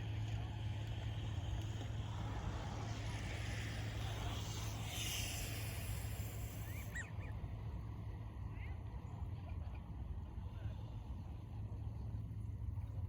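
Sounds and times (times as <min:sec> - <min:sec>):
even hiss: 0:03.8 - 0:07.0.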